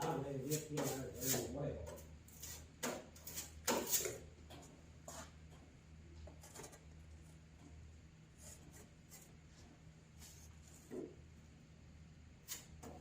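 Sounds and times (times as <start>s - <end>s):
spreader scraping body filler: 0.0s - 4.2s
low steady hum: 0.0s - 13.0s.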